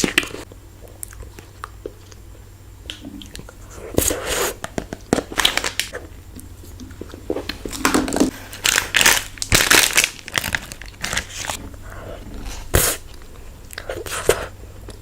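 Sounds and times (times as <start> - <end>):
plastic wrapper crinkling: 4.7 - 5.9, 7.4 - 11.6.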